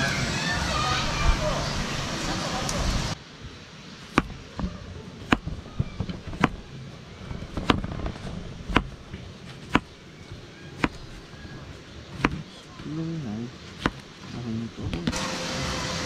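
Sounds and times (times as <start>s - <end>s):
sharp taps: 4.1s - 6.6s, 8.7s - 9.0s, 10.8s - 11.0s, 13.8s - 14.0s.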